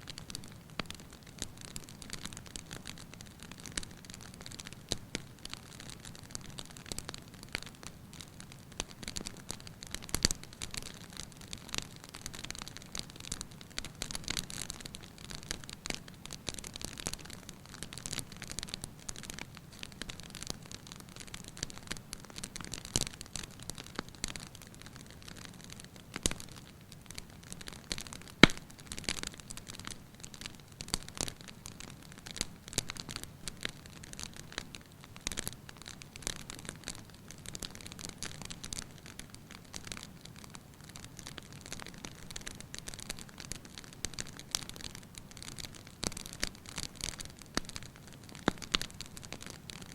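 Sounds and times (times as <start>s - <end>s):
wood fire crackling: 0.0s - 49.9s
sharp pop of fire: 28.4s - 28.7s.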